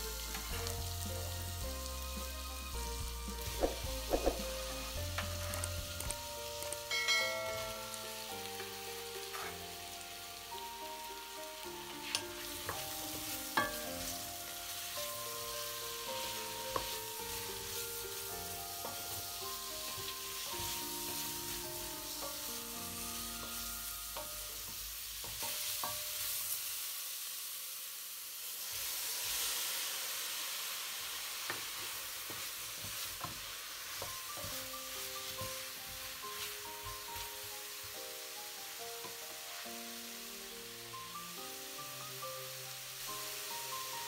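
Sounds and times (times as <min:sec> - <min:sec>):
soft background music: 0:00.0 - 0:26.8, 0:29.6 - 0:44.0
vegetables sizzling in a pot: 0:00.0 - 0:44.0
spoon knocking against pot: 0:03.6 - 0:04.4.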